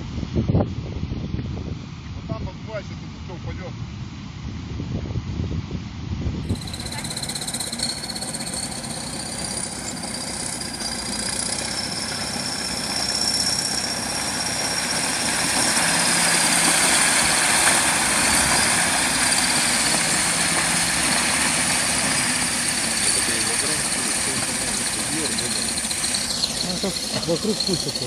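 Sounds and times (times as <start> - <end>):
vehicle engine running: 6.5 - 28.0.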